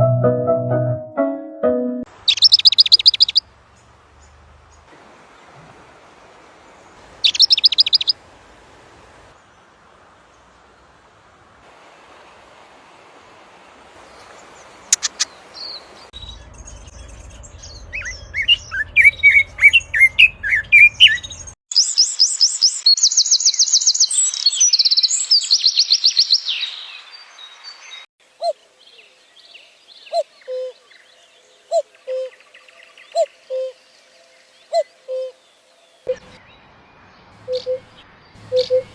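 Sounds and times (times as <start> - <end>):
warbling birdsong: 2.1 - 11.2, 13.5 - 38.9
songbird trills: 2.2 - 4.9, 7.2 - 8.2, 14.0 - 38.9
low bird calls: 2.3 - 4.9, 7.2 - 8.2, 14.2 - 15.9, 16.9 - 21.6, 36.1 - 38.9.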